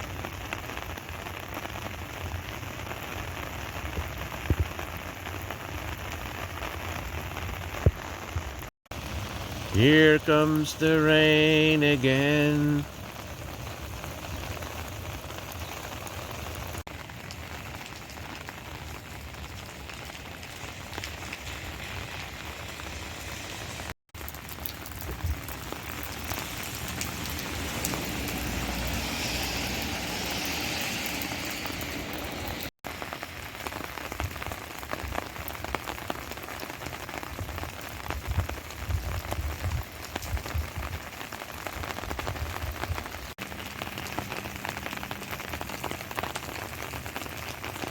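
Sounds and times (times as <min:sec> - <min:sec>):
steady rain: 0:00.0 - 0:47.9.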